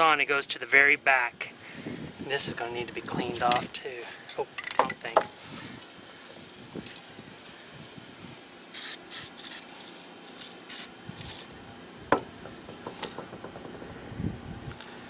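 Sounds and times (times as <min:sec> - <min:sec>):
light knocks: 0:12.1 - 0:14.4.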